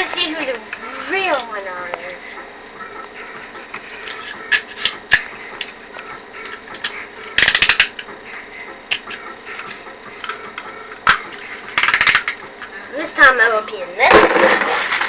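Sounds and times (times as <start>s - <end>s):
plastic handling clicks: 8.9s - 12.4s.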